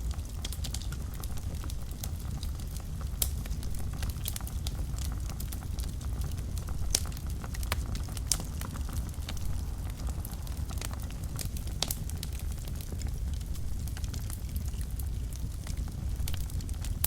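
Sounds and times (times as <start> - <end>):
fire crackles and pops: 0.0 - 17.0
loud fire snaps: 0.0 - 17.0
low rumble of flames: 0.0 - 17.0.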